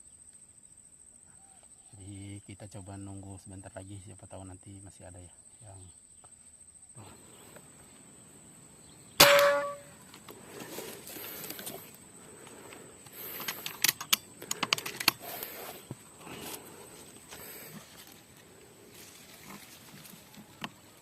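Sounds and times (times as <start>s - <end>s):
gunshot: 9.2s - 9.8s
rustling: 9.2s - 21.0s.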